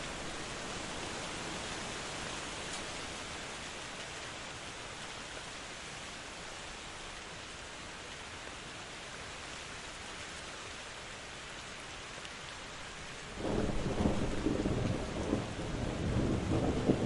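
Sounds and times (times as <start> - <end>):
rain hiss: 0.0 - 17.0
low rumble of thunder: 13.3 - 17.0.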